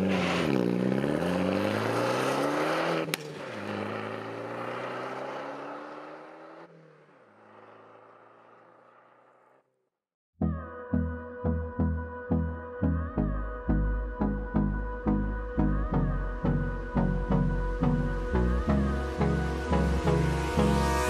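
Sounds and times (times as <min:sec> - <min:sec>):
car engine revving: 0:00.0 - 0:09.6, 0:18.6 - 0:21.0.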